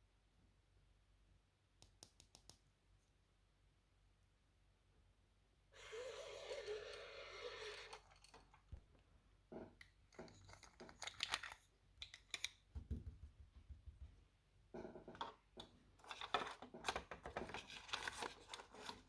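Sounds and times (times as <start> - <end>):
plastic toy and packaging handling: 10.1 - 12.6, 16.0 - 19.0.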